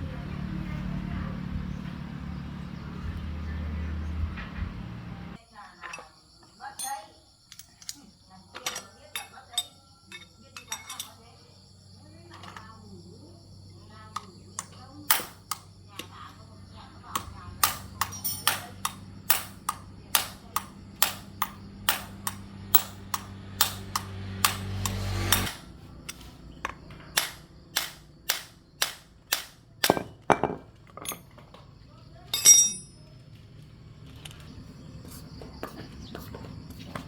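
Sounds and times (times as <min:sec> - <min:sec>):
hammer strikes: 0:17.2 - 0:26.2, 0:27.1 - 0:30.6.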